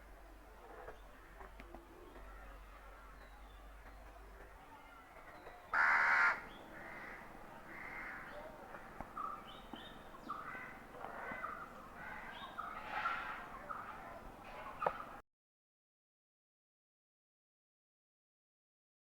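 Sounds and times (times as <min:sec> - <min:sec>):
harsh bird calls: 0:05.7 - 0:15.2.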